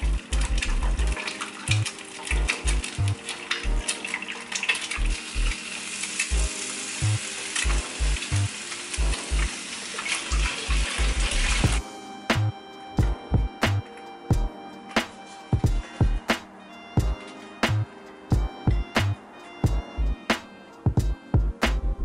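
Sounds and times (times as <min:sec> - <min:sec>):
eggs and bacon sizzling in oil: 0:00.0 - 0:11.8
soft music with low beat: 0:00.0 - 0:22.0.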